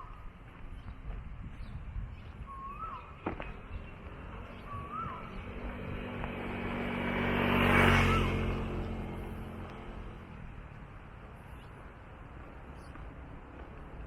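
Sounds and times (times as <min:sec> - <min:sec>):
car passing by: 0:03.3 - 0:10.5.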